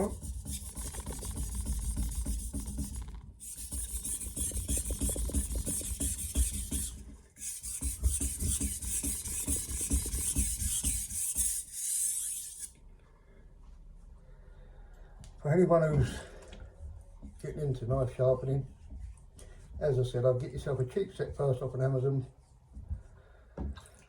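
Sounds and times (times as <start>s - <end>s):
knife scraping on whetstone: 0.0s - 12.7s.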